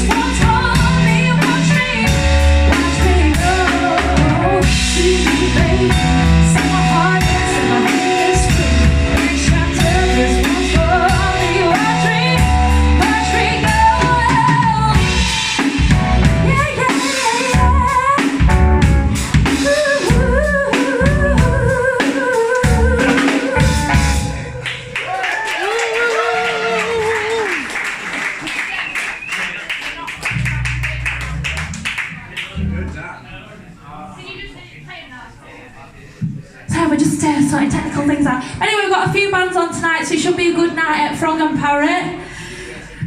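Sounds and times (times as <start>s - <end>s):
woman singing: 0.0s - 18.5s, 19.4s - 25.0s
live rock band playing: 0.0s - 24.9s, 30.2s - 32.8s
drum kit: 0.0s - 25.2s, 30.2s - 33.1s.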